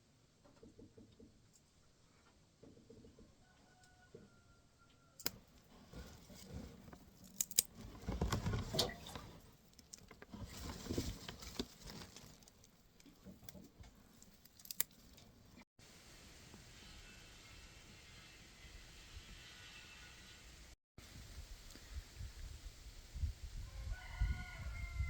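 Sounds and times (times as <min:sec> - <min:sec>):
rustling of leafy carrot tops: 0:05.3 - 0:15.6.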